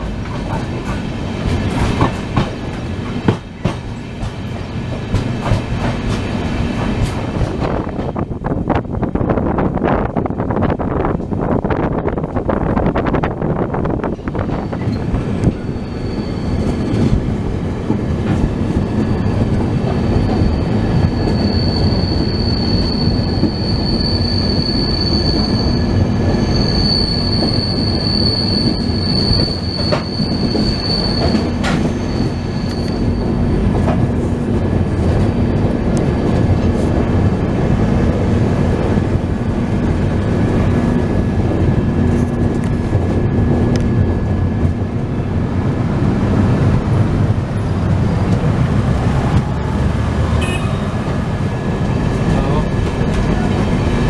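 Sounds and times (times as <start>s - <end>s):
train wheels rumbling on track: 0.0s - 54.0s
high wheel squeal: 14.2s - 17.3s, 18.3s - 33.6s, 49.1s - 52.7s.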